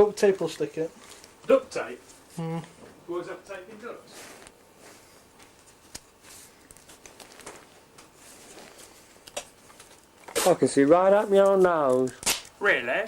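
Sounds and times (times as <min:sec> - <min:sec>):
soft rustles: 0:04.1 - 0:11.8.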